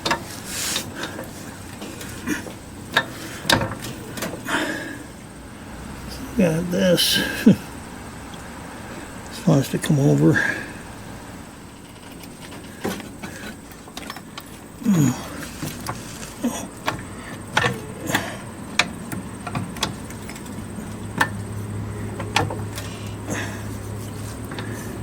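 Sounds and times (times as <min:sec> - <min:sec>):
steady low hum: 0:00.0 - 0:25.0
metallic clanks and knocks: 0:01.0 - 0:04.5.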